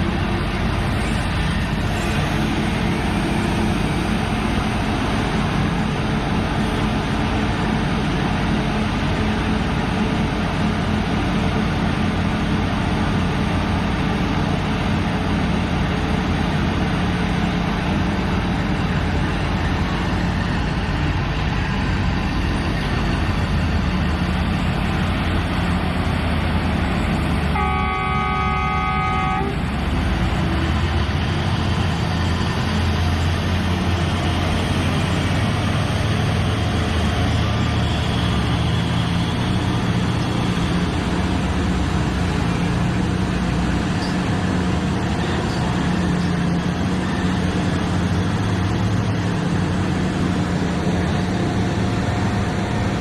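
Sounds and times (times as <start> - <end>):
excavator diesel engine running: 0.0 - 53.0
horn sounding: 27.5 - 29.6.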